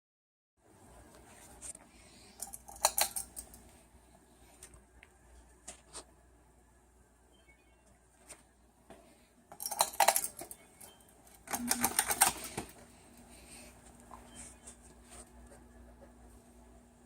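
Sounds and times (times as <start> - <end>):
faint steady hum: 0.6 - 17.0
metallic clicking and rattling: 2.4 - 3.6, 9.5 - 10.6.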